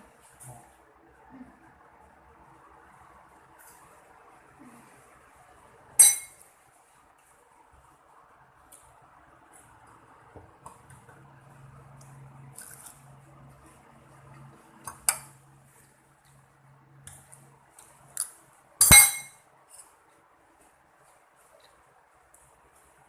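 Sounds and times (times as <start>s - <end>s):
cutlery and dishes clinking: 6.0s - 6.4s, 18.8s - 19.3s.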